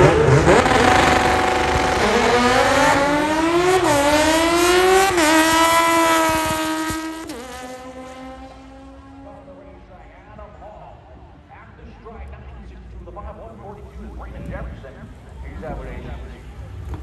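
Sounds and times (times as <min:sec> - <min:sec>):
car engine accelerating hard: 0:00.0 - 0:09.6.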